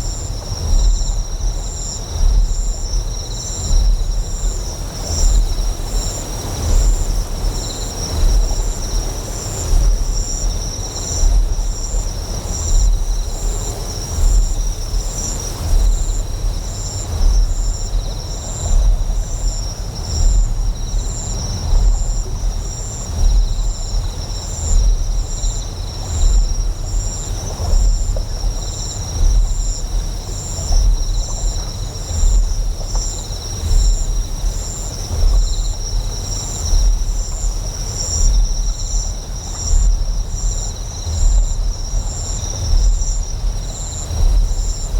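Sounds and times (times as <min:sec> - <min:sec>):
insect chirring: 0:00.0 - 0:44.9.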